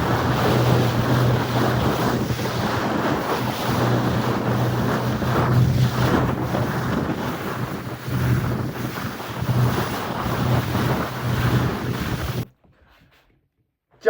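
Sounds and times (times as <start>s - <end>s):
boat engine hum: 0.0s - 12.5s
water rushing past hull: 0.0s - 12.5s
wind buffeting microphone: 0.0s - 12.5s.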